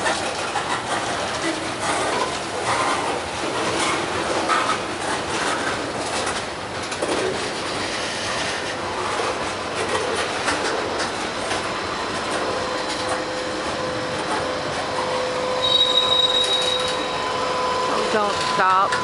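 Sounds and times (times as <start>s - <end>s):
freight train wheels rolling: 0.0s - 19.0s
higher wheel squeal: 12.5s - 19.0s
wheel squeal: 14.9s - 19.0s.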